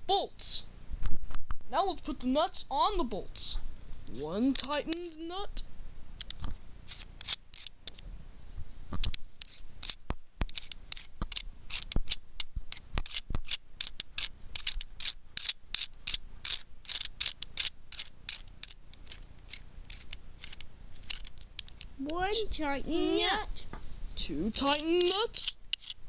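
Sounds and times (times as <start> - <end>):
nut scratchy clicks on bolt: 9.0 - 21.9, 24.7 - 26.0.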